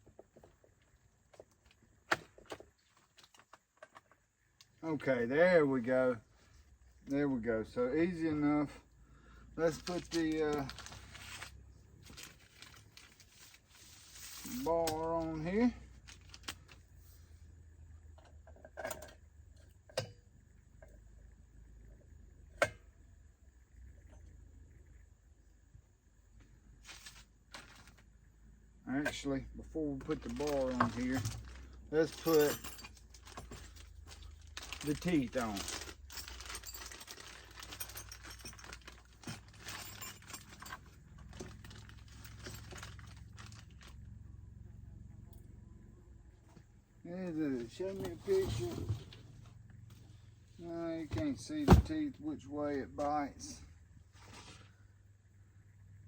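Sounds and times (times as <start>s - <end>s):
faint steady hum: 0.0s - 56.0s
chain links rattling and clinking: 30.1s - 44.0s.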